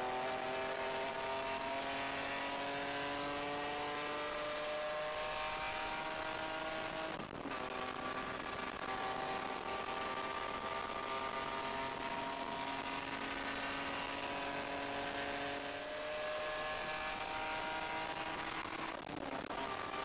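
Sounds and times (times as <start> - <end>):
race car engine at full throttle: 0.0 - 20.0.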